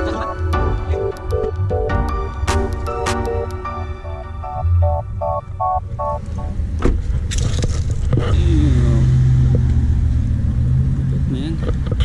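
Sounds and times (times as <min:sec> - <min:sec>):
background music: 0:00.0 - 0:06.7.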